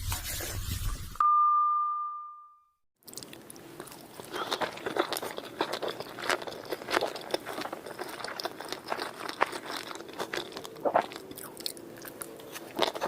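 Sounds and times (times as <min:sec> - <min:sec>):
ringing tone: 0:01.2 - 0:02.8
chewing with crisp crunching: 0:03.0 - 0:13.0.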